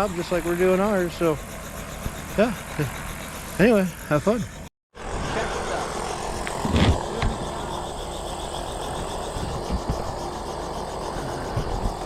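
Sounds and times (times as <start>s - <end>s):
engine idling: 5.2s - 12.0s
wind buffeting microphone: 8.9s - 10.3s.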